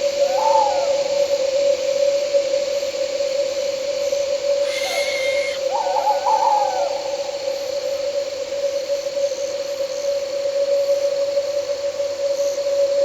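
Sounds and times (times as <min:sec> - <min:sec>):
night insects droning: 0:00.0 - 0:13.0
owl calling: 0:04.6 - 0:06.8.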